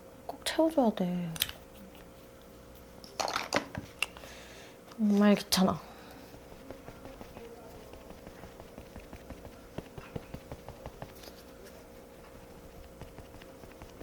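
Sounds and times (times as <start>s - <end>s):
faint steady hum: 0.0s - 14.0s
fingers tapping on skin: 6.4s - 11.3s, 12.4s - 14.0s.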